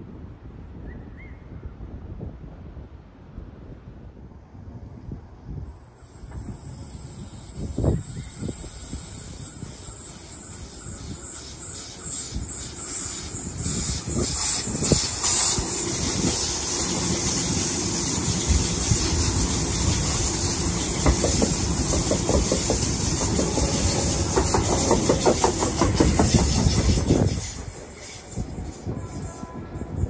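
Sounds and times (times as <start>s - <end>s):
train wheels rumbling on rails: 5.6s - 30.0s
steady hiss: 5.8s - 29.0s.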